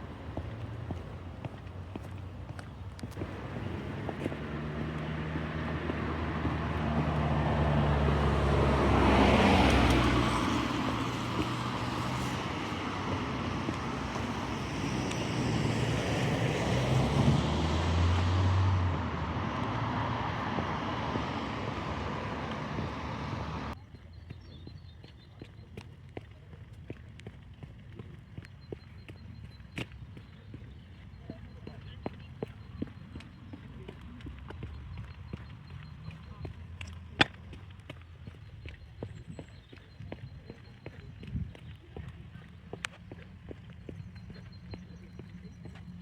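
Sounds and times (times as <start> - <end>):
vehicles passing: 0.0 - 46.0.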